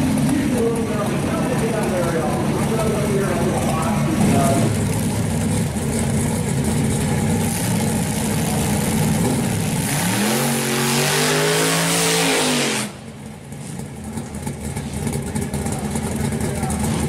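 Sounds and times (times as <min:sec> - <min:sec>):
car engine idling roughly: 0:00.0 - 0:09.8, 0:12.9 - 0:17.0
engine revving with loud hiss: 0:09.3 - 0:13.0.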